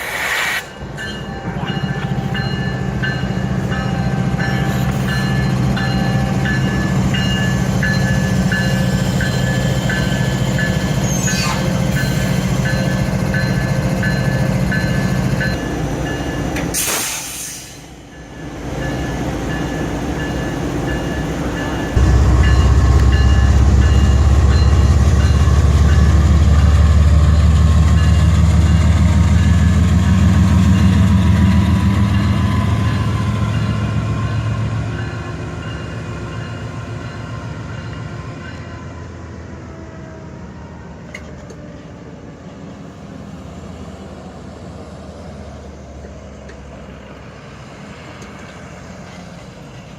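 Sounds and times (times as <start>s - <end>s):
short sharp hiss: 0.0s - 0.7s, 16.8s - 17.9s
diesel locomotive engines running: 0.0s - 49.9s.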